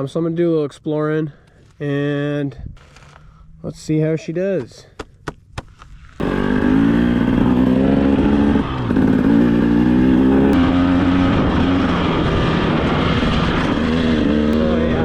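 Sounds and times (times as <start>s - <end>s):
dirt bike engine running: 6.2s - 15.0s.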